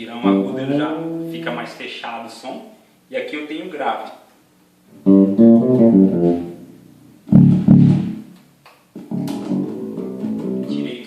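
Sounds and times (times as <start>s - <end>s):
electric bass plucked: 0.0s - 1.6s, 5.0s - 8.3s, 9.0s - 11.0s.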